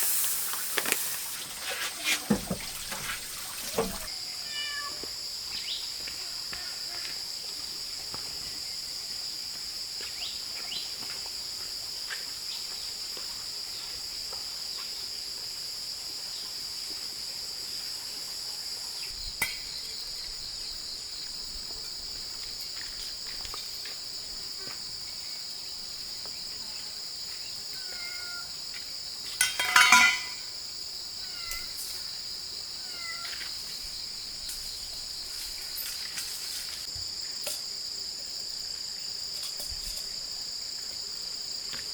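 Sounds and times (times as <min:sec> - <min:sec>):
insects shrill drone: 0:26.6 - 0:28.8, 0:29.6 - 0:40.7.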